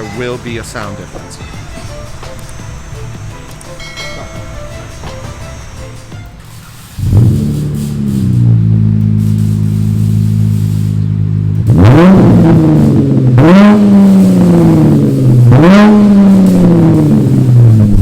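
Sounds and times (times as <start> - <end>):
car engine revving: 0.0 - 18.0
car engine starting and idling: 0.0 - 18.0.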